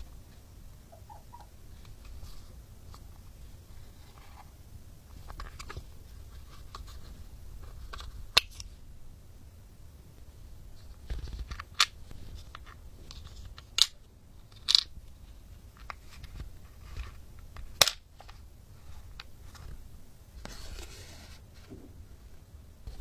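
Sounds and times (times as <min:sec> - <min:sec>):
plastic toy pieces rustling: 0:14.5 - 0:14.9.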